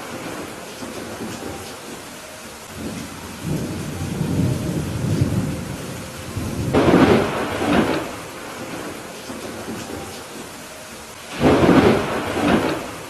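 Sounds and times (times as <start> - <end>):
thunder claps: 0.0 - 10.6, 11.3 - 13.0
steady rain: 0.0 - 13.0
thunder rumbling: 0.0 - 13.0.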